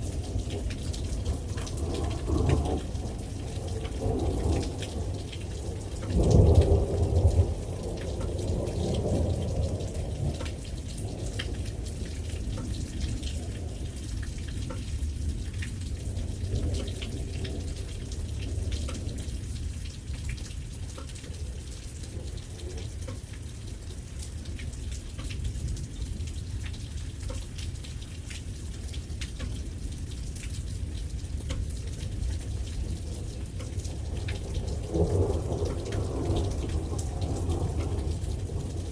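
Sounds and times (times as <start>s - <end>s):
rolling thunder: 0.0s - 19.6s, 32.0s - 38.9s
steady rain: 0.0s - 38.9s.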